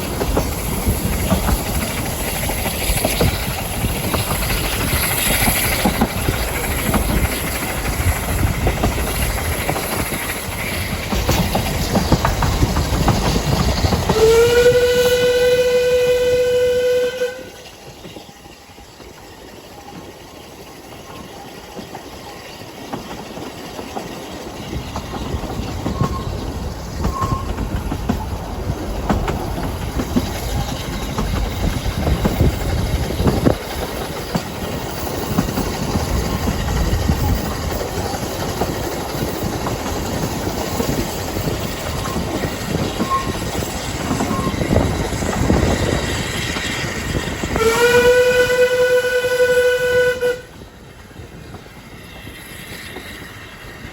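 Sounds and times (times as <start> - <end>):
train rumble and wheel clatter: 0.0 - 53.9
train horn long note: 14.1 - 17.7, 47.6 - 50.6.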